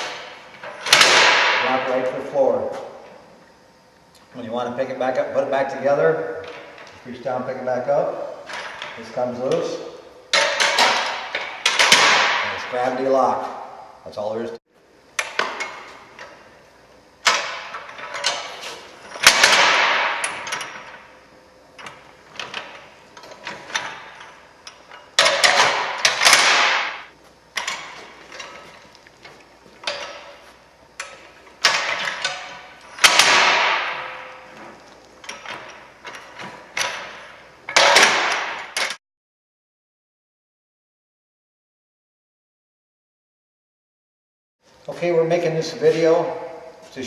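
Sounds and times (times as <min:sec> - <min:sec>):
metal clanks and clicks: 0:21.8 - 0:26.8, 0:27.6 - 0:30.4, 0:31.0 - 0:39.0.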